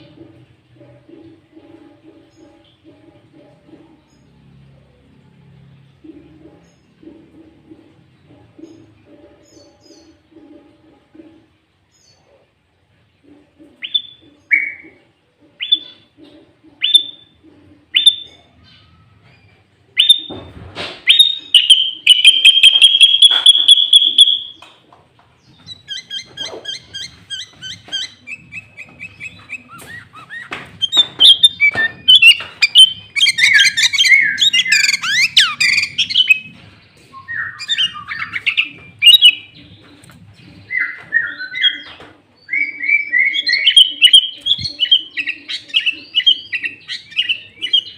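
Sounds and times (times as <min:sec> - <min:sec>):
bulbul singing: 0:16.8 - 0:20.5, 0:21.1 - 0:24.8, 0:25.4 - 0:47.9.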